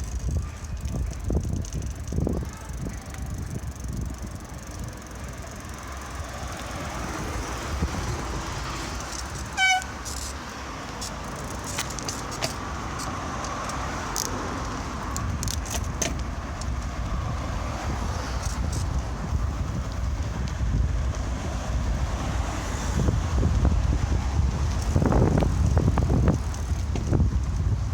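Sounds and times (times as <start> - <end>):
wind rumble on microphone: 0.0 - 10.0, 10.6 - 27.9
road traffic: 0.0 - 27.9
short horn toot: 9.4 - 10.0.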